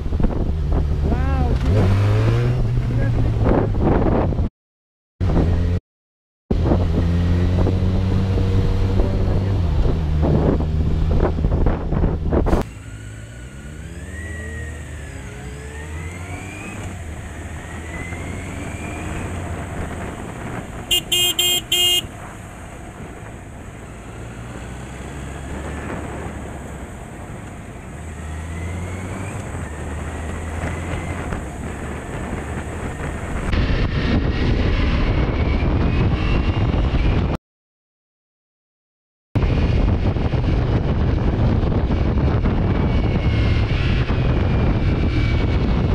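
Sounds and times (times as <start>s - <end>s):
motorcycle engine accelerating: 0.0s - 4.5s, 6.5s - 37.4s, 39.4s - 45.9s
horn short beeps: 20.9s - 22.1s.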